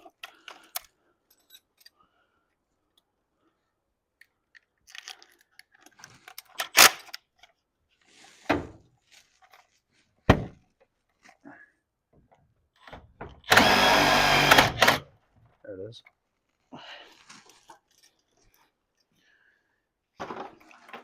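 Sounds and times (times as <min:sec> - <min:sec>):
metal tools clinking and knocking: 0:00.1 - 0:02.0.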